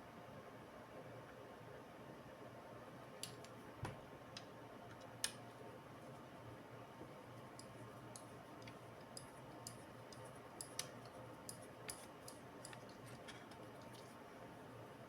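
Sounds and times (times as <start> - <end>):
low steady hum: 0.0 - 15.0
small parts and tools clicking: 7.6 - 14.0.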